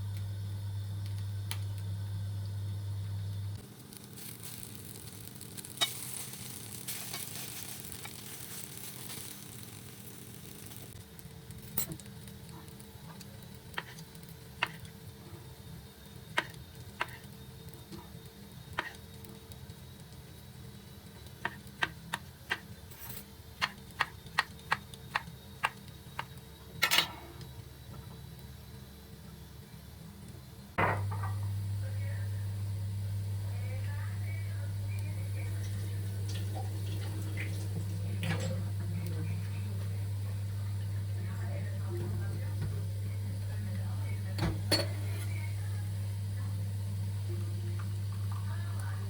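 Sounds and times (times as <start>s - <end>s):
food sizzling: 3.2s - 29.2s, 31.0s - 49.0s.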